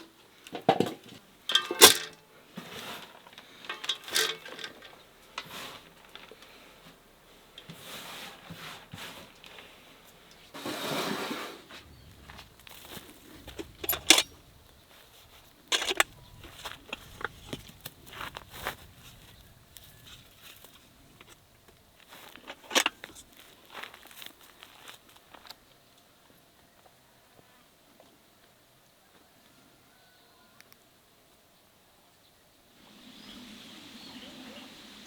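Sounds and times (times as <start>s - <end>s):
items knocking and clicking: 0.0s - 2.2s, 3.0s - 6.4s, 13.4s - 14.4s, 15.7s - 17.8s
rustling: 0.0s - 25.6s.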